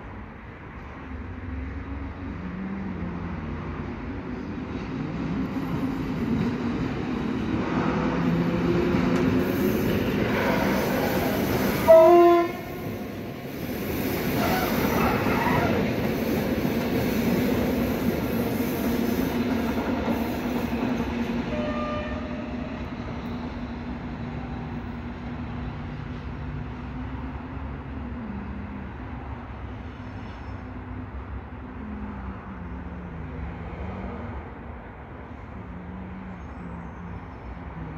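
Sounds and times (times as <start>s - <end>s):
electric train rumbling past: 0.0s - 37.9s
train horn blast: 11.7s - 13.1s, 21.5s - 22.8s.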